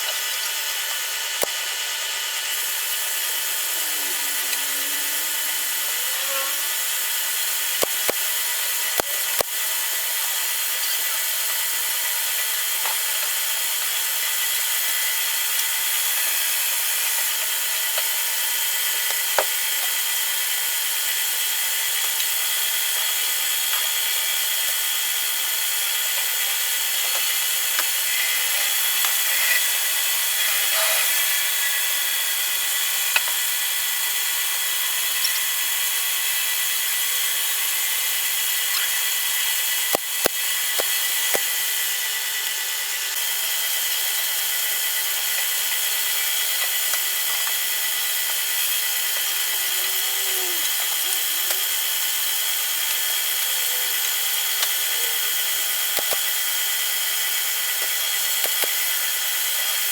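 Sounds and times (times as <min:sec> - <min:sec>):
electric power tool whining: 0:01.4 - 0:12.0, 0:26.2 - 0:33.5, 0:36.7 - 0:59.9.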